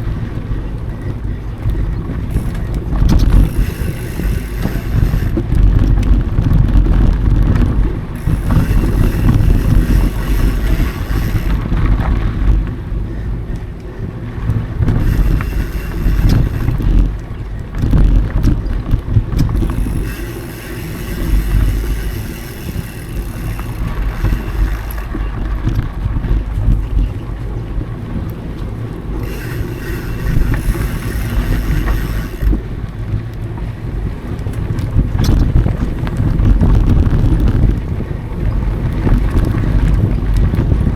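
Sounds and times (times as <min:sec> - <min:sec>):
bike rattling over trail: 0:00.0 - 0:40.9
wind buffeting microphone: 0:00.0 - 0:40.9.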